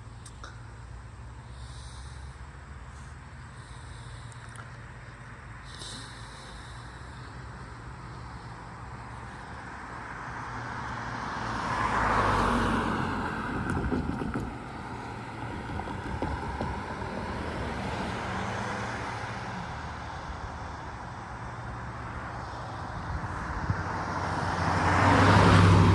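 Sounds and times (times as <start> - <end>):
vehicle passing by: 5.5 - 25.9.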